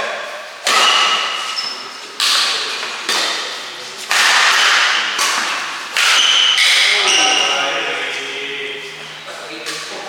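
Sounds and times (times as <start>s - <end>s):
racket hitting shuttlecock: 0.6s - 7.1s.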